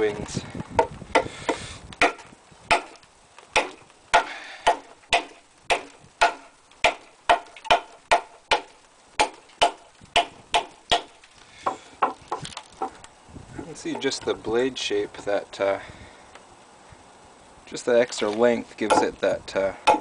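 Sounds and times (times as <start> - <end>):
blade chopping wood: 0.8 - 13.0, 18.8 - 20.0.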